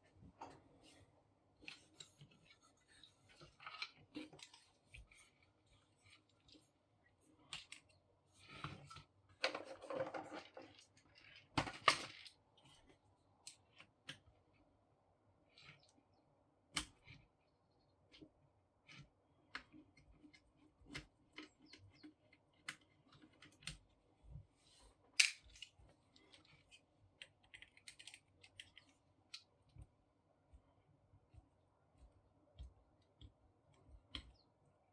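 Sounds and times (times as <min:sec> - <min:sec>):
plastic parts clicking and knocking: 0:07.5 - 0:12.9, 0:25.1 - 0:29.9.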